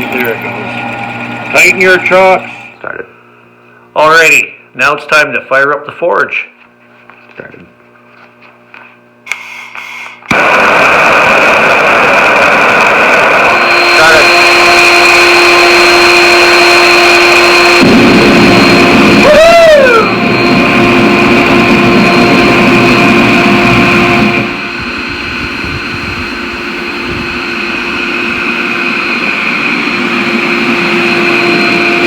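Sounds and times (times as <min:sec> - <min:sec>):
forge drone: 0:00.0 - 0:03.2, 0:09.3 - 0:32.0
rising and falling whistle: 0:10.3 - 0:32.0
low rushing noise: 0:17.8 - 0:32.0.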